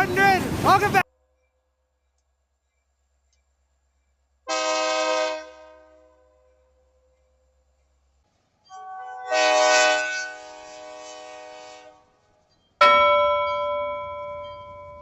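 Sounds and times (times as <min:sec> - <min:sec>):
train horn blast: 0:04.5 - 0:06.8, 0:09.0 - 0:12.3
bell-like strike ringing: 0:12.8 - 0:15.0.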